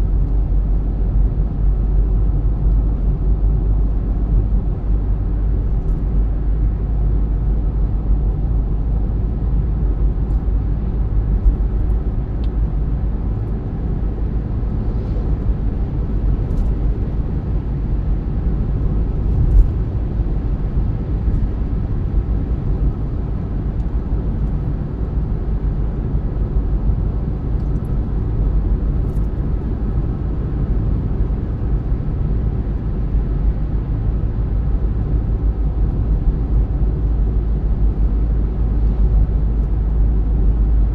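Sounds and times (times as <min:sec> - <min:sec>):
car road and engine rumble: 0:00.0 - 0:40.9.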